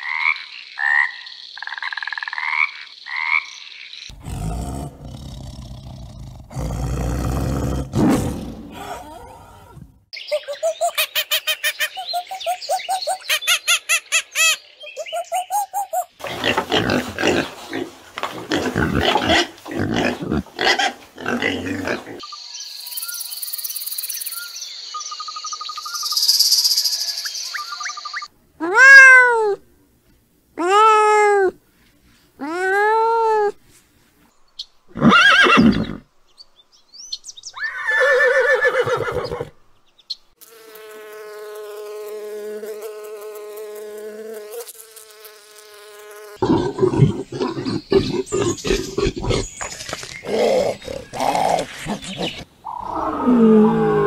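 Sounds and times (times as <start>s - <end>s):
pigs grunting and squealing: 4.1s - 10.0s, 16.2s - 22.2s, 46.4s - 54.0s
tiger growling: 4.1s - 10.1s, 46.4s - 54.0s
fast repeated chirping calls: 10.2s - 16.2s
cat meowing: 28.6s - 29.6s.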